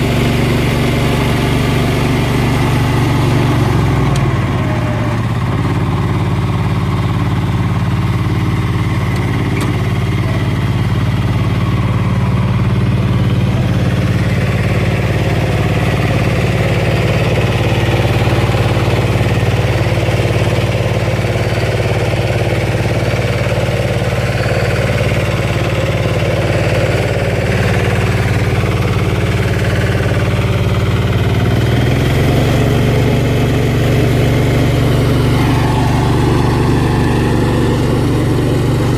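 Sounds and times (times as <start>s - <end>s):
rotary tiller in hard soil: 0.0s - 38.9s
tractor diesel engine running: 0.0s - 38.9s.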